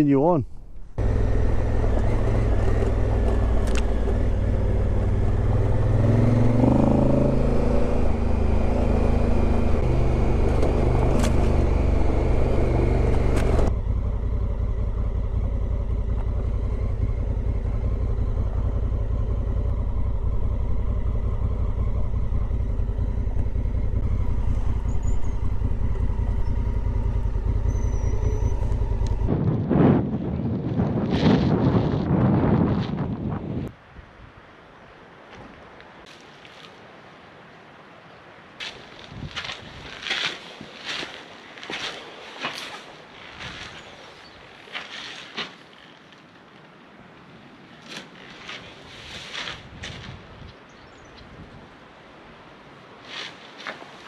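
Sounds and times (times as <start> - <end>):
motorcycle engine running: 1.0 - 33.0.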